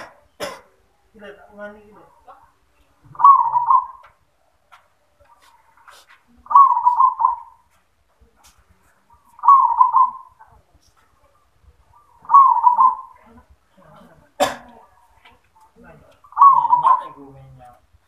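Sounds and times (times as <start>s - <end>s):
dove cooing: 3.0s - 4.2s, 5.3s - 7.7s, 9.1s - 10.6s, 11.8s - 13.5s, 16.2s - 17.6s.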